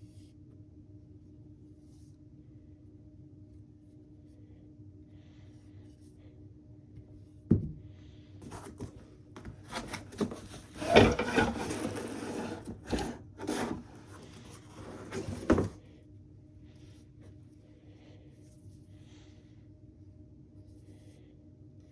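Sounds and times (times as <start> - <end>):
rubbing and scraping of packaging: 8.4 - 15.8.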